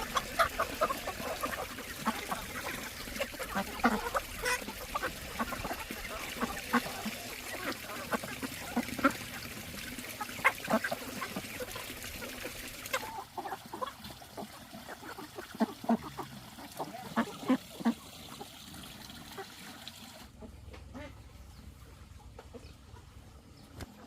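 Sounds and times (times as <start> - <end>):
ducks and chickens calling: 0.0 - 24.0.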